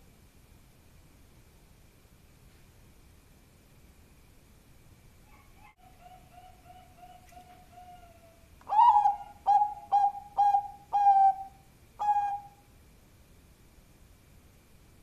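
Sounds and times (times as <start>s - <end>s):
dove cooing: 5.3s - 12.6s.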